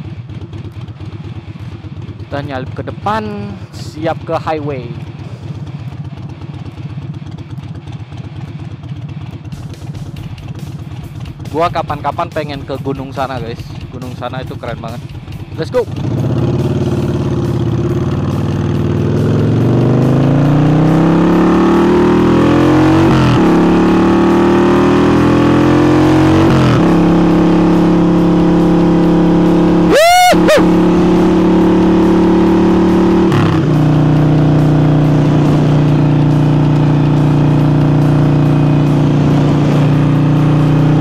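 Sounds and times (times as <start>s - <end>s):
motorcycle accelerating: 0.0s - 41.0s.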